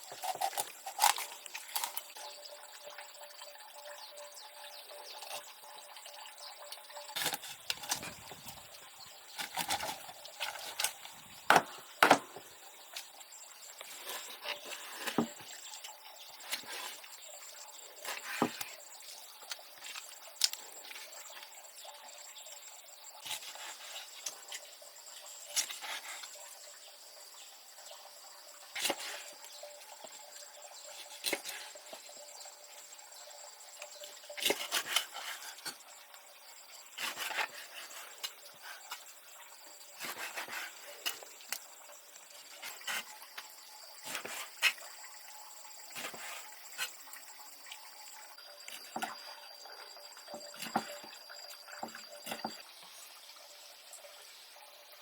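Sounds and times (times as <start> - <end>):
wood knocking: 11.5 - 12.5.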